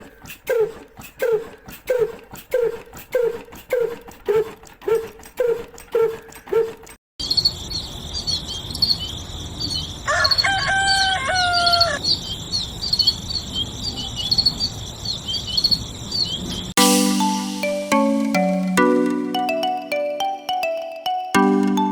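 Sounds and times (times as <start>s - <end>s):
dog yelping: 0.3s - 7.0s
rooster crowing: 10.0s - 12.0s.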